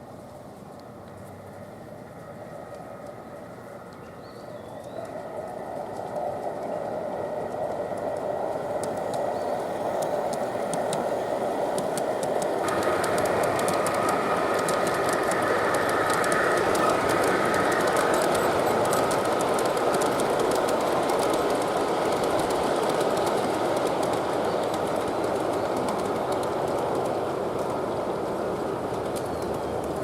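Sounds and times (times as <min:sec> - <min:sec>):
model train whine: 0:00.8 - 0:30.0
model train wheels clicking: 0:04.8 - 0:30.0.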